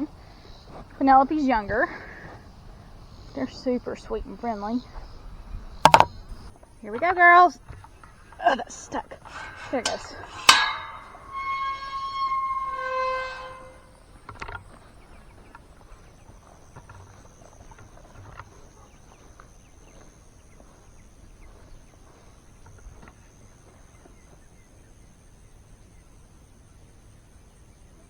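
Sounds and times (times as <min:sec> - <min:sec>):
gate thump: 0:05.9 - 0:06.2
metal gate clanking: 0:05.9 - 0:06.4, 0:09.2 - 0:13.9
gate hinges squealing: 0:09.2 - 0:14.0.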